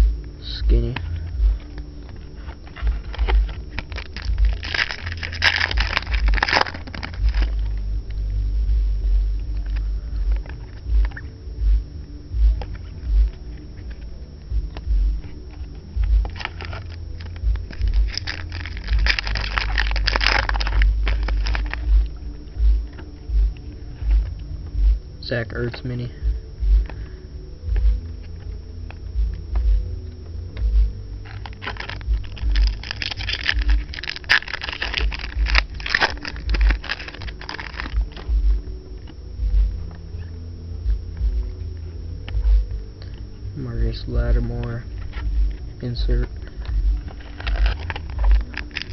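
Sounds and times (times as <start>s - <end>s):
card pack clicks and rustles: 0.8s - 7.8s, 12.6s - 24.5s, 30.5s - 39.2s, 44.4s - 48.9s
foil wrapper crinkling: 0.9s - 7.9s, 12.6s - 24.6s, 30.5s - 40.4s, 44.0s - 48.9s.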